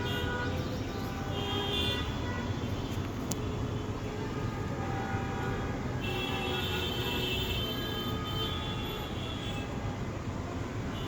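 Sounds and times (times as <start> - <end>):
rumble of passing vehicles: 0.0 - 11.0
car horns honking: 3.6 - 9.8.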